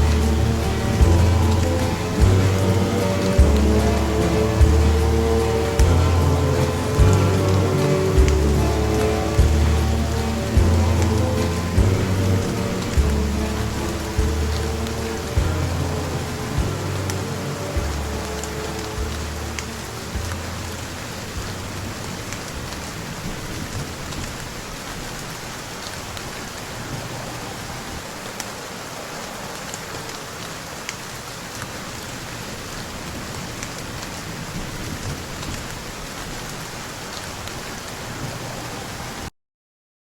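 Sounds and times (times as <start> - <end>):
low music notes: 0.0 - 23.0
steady rain: 0.0 - 39.3.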